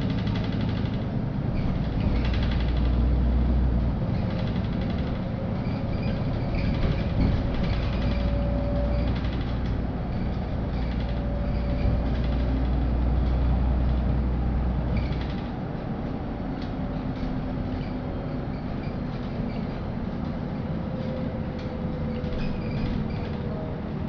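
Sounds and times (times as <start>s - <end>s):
bus engine rumble: 0.0s - 24.0s.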